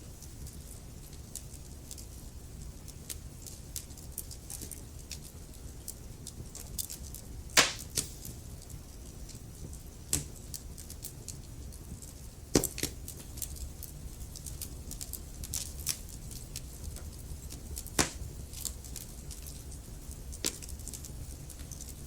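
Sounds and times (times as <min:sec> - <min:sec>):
fire ticks and snaps: 0:00.0 - 0:22.0
low rumble of flame: 0:00.0 - 0:22.0
loud sharp fire pop: 0:07.6 - 0:08.1, 0:18.0 - 0:18.2.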